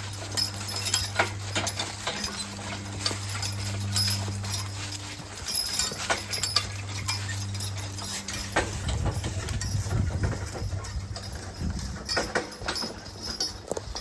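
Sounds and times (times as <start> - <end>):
low hum: 0.0 - 13.6
horse hooves clopping: 0.0 - 14.0.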